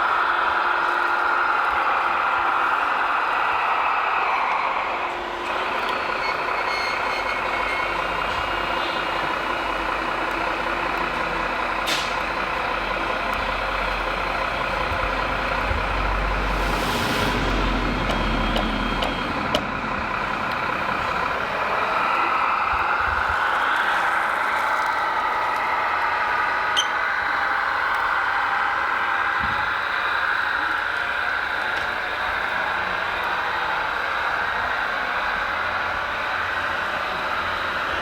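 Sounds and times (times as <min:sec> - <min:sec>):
electric motors whining: 0:00.1 - 0:16.6
hiss of air: 0:15.4 - 0:19.4.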